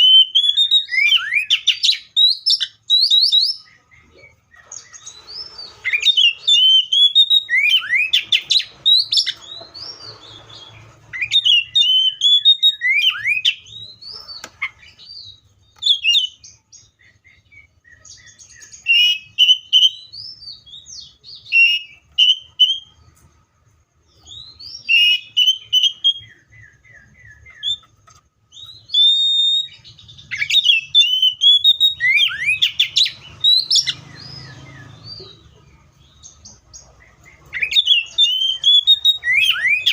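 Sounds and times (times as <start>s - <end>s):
bird singing whistled phrases: 0.0s - 23.0s, 24.1s - 39.9s.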